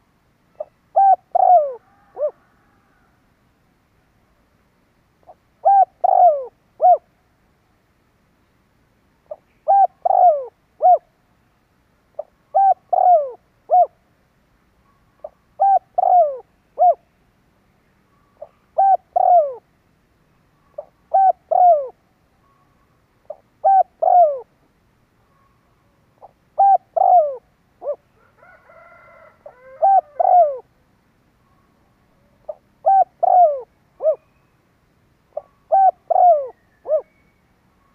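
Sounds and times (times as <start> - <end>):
dove cooing: 0.6 - 3.1, 5.2 - 7.1, 9.3 - 11.1, 12.2 - 14.0, 15.2 - 17.1, 18.4 - 19.7, 20.8 - 22.0, 23.3 - 24.5, 26.2 - 30.7, 32.4 - 34.4, 35.3 - 37.2.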